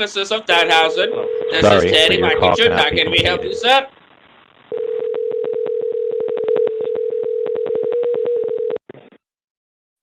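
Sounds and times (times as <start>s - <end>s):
telephone line tone: 0.8s - 3.6s, 4.7s - 8.8s.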